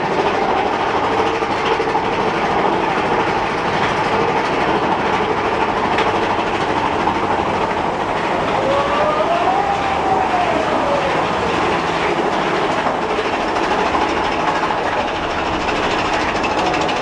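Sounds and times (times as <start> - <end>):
ride cars rumbling on track: 0.0 - 17.0.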